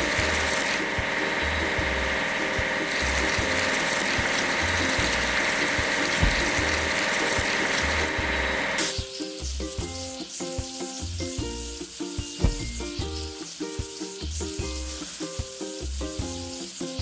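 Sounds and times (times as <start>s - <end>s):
music with repeating bass: 0.0s - 8.6s, 9.4s - 10.3s, 11.0s - 16.6s
rapid mechanical clicking: 0.0s - 8.9s
steady hiss: 0.0s - 17.0s.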